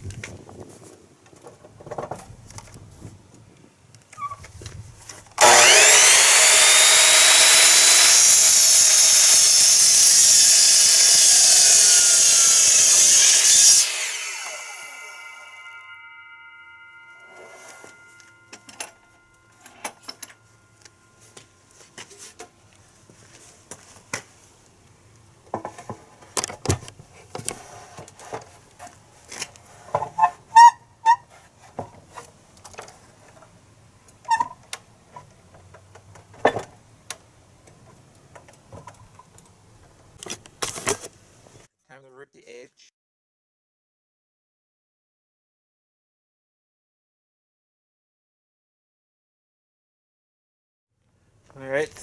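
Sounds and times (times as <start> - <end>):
boards and tools clattering: 5.1 - 15.5
power saw whine: 5.4 - 22.4.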